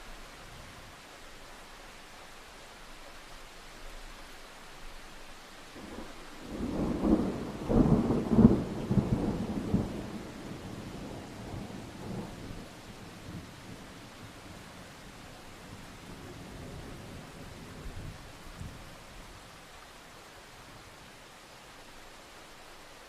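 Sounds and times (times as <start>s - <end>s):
rain hiss: 0.0s - 23.0s
thunder rumbling: 5.8s - 14.7s.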